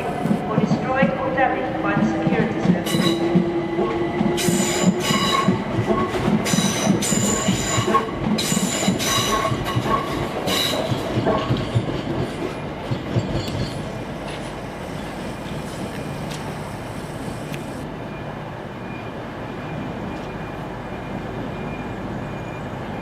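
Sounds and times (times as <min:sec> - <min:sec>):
train rumble: 0:00.0 - 0:23.0
train wheels squealing: 0:02.8 - 0:03.4, 0:04.4 - 0:11.6.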